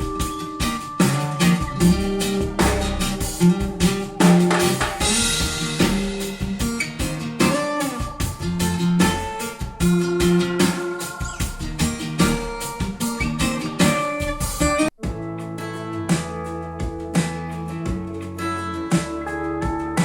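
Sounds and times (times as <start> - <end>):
pop-rock music over loudspeakers: 0.0 - 20.0
cymbal crash: 1.8 - 8.6.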